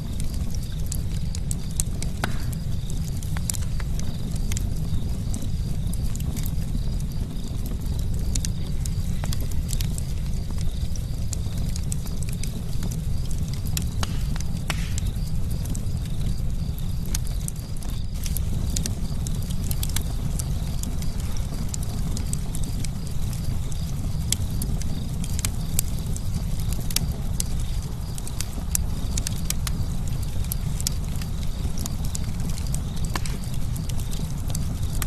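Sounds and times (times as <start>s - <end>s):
campfire crackling: 0.0s - 35.0s.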